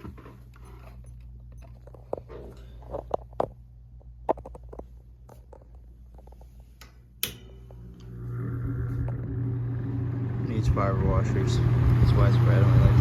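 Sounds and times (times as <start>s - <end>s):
electric fan motor hum: 6.7s - 13.0s
sharp switch click: 6.8s - 7.6s.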